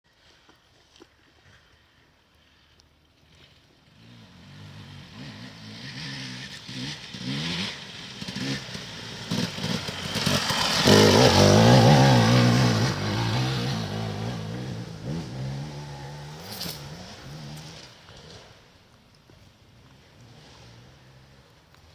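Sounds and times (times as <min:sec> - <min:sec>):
motorcycle engine revving past: 0:03.9 - 0:18.8, 0:19.7 - 0:21.9.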